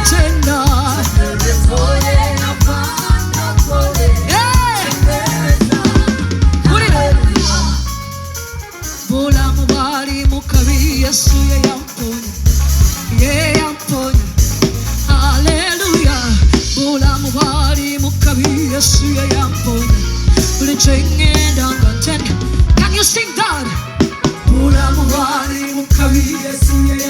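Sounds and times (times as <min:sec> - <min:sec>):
person singing: 0:00.0 - 0:08.0, 0:15.1 - 0:27.0
gospel band playing: 0:00.0 - 0:27.0.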